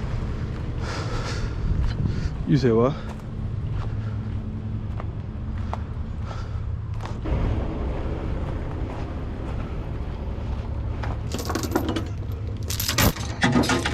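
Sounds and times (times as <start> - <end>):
diesel engine idling: 0.0 - 12.8
metallic clinking and rattling: 11.2 - 13.9.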